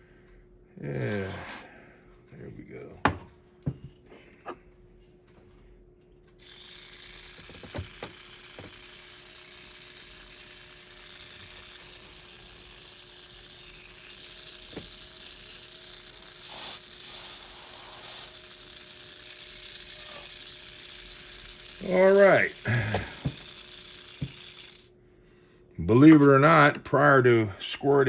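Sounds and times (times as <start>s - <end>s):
small electric motor whining: 6.4s - 24.9s.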